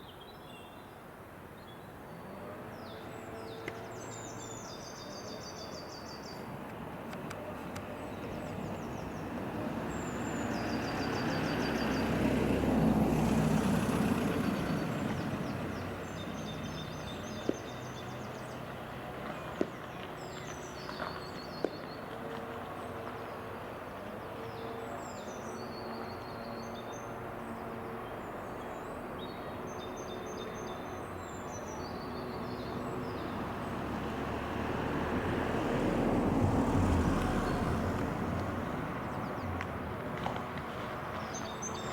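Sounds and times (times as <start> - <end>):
freight train engine drone: 1.0 - 36.7
small birds singing: 1.6 - 6.6, 7.2 - 12.2, 14.0 - 33.9, 38.6 - 39.7, 41.0 - 41.9.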